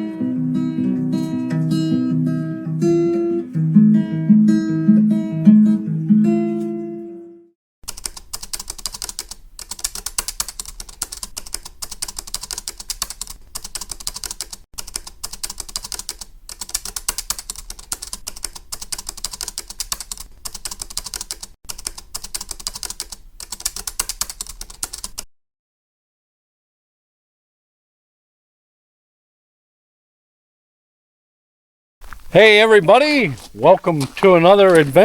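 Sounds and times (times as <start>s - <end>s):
fast typing clicks: 7.8s - 25.2s.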